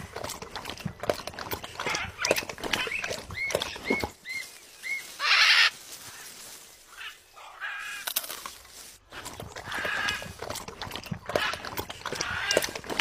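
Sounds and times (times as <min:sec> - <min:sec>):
harsh bird squawk: 0:02.8 - 0:05.8.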